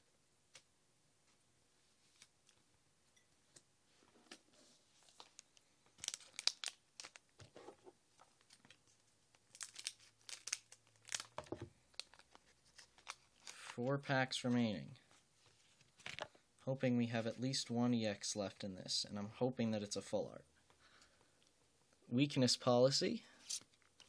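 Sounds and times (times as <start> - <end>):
foil wrapper tearing and crinkling: 6.0 - 7.3, 9.4 - 13.8.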